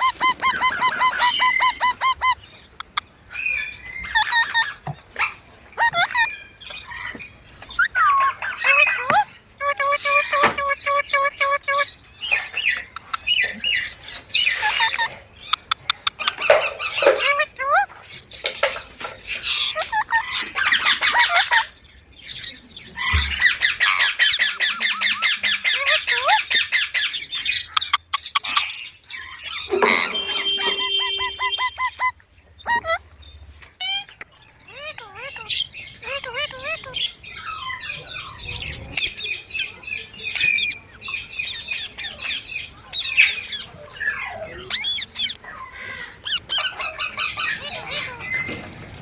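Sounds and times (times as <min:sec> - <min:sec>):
parrot squawking: 0:00.0 - 0:07.1, 0:07.7 - 0:12.0, 0:14.3 - 0:15.2, 0:18.6 - 0:21.7, 0:29.5 - 0:32.1, 0:33.8 - 0:38.4.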